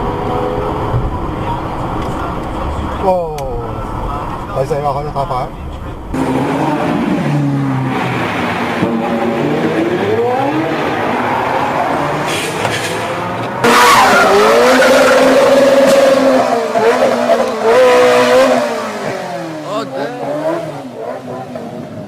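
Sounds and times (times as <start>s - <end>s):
sports car engine revving: 6.0s - 22.0s.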